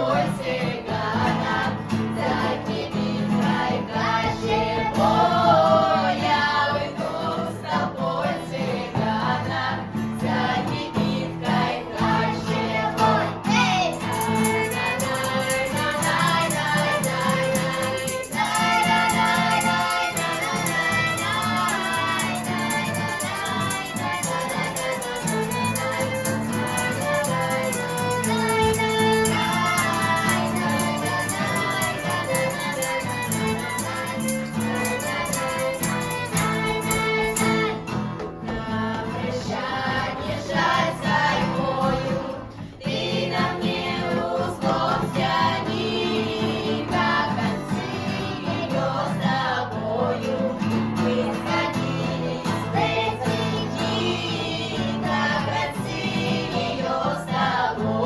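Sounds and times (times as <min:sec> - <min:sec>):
vocal ensemble singing: 0:00.0 - 0:58.0
instrumental accompaniment: 0:10.3 - 0:42.7.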